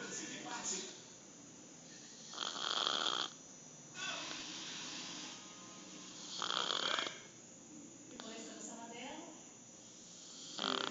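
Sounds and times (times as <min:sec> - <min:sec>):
dog snoring: 0:01.9 - 0:03.4, 0:04.1 - 0:07.3, 0:10.0 - 0:10.9.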